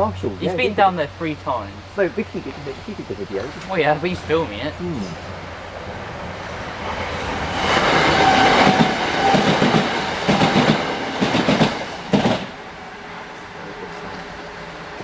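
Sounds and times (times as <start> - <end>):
train passing: 0.0 - 15.0
train wheels clacking over rail joints: 7.4 - 12.6.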